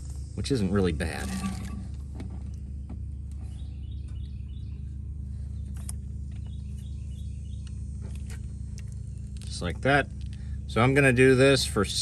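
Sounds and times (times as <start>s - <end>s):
steady low hum: 0.0s - 12.0s
small bird chirping: 2.4s - 8.2s.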